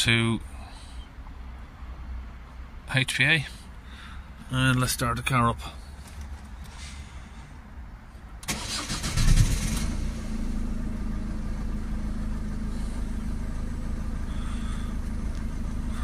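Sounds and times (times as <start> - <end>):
diesel engine starting and idling: 8.4 - 16.0.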